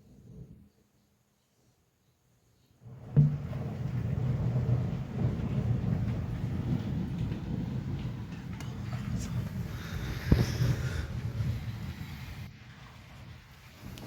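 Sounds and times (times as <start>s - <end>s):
thunder clap: 2.8s - 14.0s
thunder rumbling: 2.8s - 14.0s.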